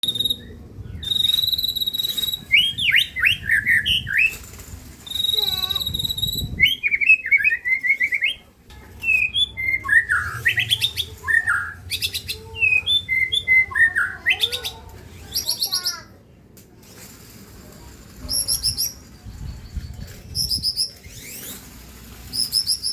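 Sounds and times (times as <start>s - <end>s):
songbird singing: 0.0s - 4.4s, 5.0s - 16.4s, 18.2s - 21.6s.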